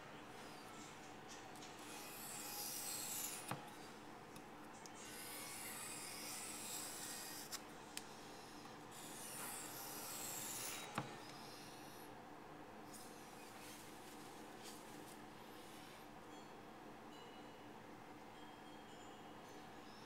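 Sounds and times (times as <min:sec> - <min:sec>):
knife scraping on whetstone: 0:01.9 - 0:03.6, 0:05.0 - 0:07.6, 0:09.0 - 0:11.1.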